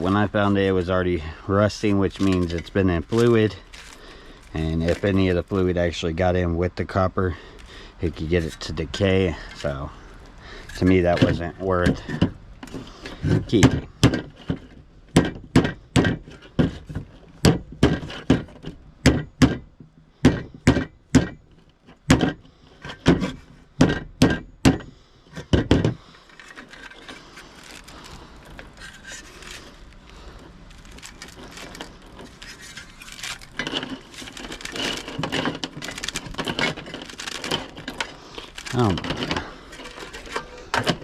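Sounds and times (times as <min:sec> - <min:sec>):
handling and rustling: 0:00.0 - 0:41.0
hard strikes on scrap metal: 0:17.4 - 0:21.4, 0:23.0 - 0:26.0.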